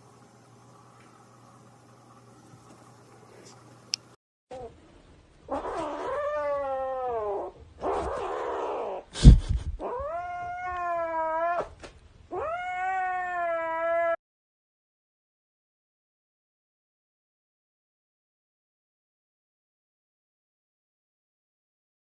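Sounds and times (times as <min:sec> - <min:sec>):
animal yowling: 0:05.5 - 0:09.1, 0:09.8 - 0:14.2.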